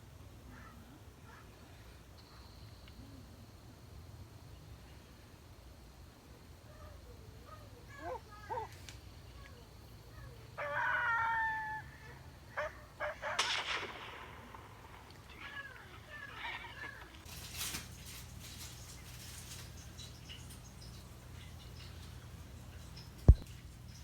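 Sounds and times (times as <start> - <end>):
animal calls: 6.7 - 17.3
crackling noises: 12.6 - 24.0.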